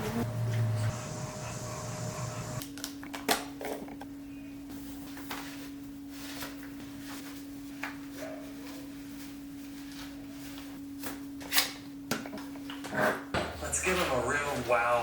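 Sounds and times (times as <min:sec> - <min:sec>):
steady low hum: 0:00.0 - 0:02.7.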